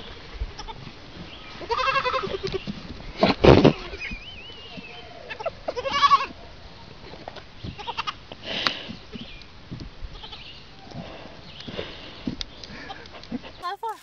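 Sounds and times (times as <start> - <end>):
goat kids bleating: 0.5 - 0.9, 1.5 - 2.7, 4.8 - 6.4, 7.6 - 8.2, 10.1 - 10.6.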